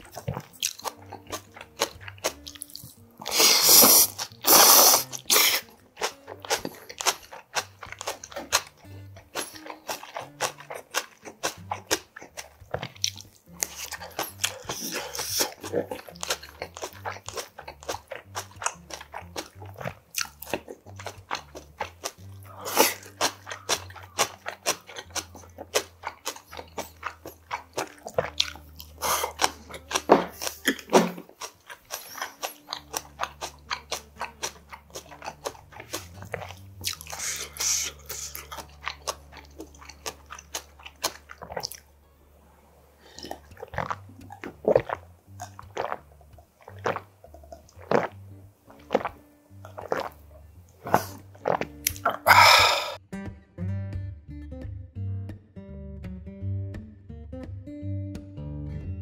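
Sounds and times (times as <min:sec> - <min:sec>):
wet chewing and slurping: 0:00.0 - 0:41.9, 0:43.0 - 0:53.0
person swallowing a drink: 0:10.2 - 0:41.8, 0:43.1 - 0:50.2, 0:50.8 - 0:53.0.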